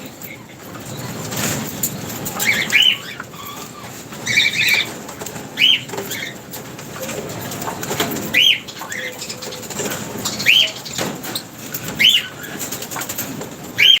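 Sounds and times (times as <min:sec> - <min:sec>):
parrots chirping shrilly: 0:02.4 - 0:04.9, 0:05.6 - 0:06.4, 0:08.2 - 0:13.1.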